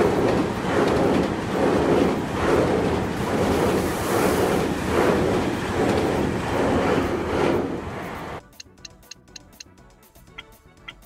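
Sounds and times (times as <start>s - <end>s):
train wheels rumbling on rail: 0.0s - 8.4s.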